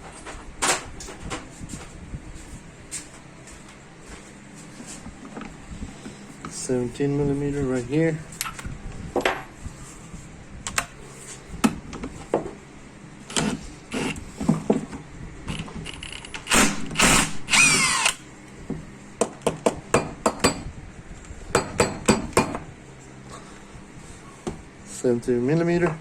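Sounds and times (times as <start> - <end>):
power tool whine: 15.5 - 18.2.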